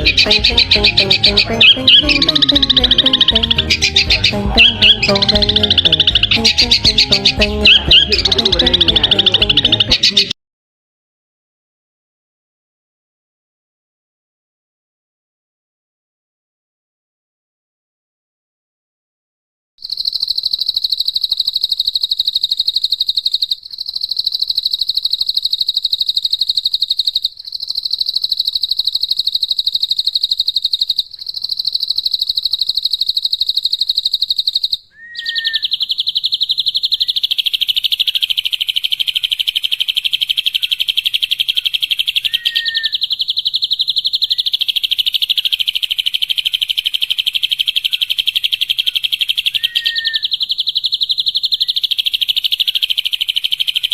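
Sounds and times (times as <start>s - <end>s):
short low bird chirps: 0.0s - 10.4s, 30.2s - 53.9s
songbird rapid high trill: 0.0s - 10.4s, 19.8s - 53.9s.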